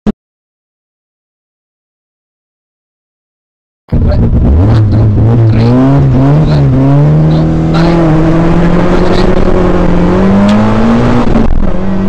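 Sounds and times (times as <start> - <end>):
car engine accelerating: 3.9 - 12.0.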